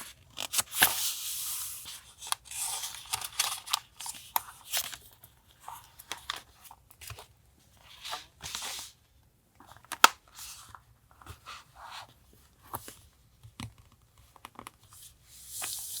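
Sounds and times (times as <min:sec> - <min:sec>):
paper rustling: 0:00.4 - 0:05.1.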